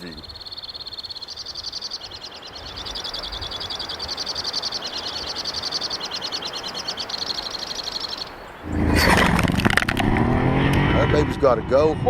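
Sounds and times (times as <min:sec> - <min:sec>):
car engine revving: 0:08.6 - 0:12.0.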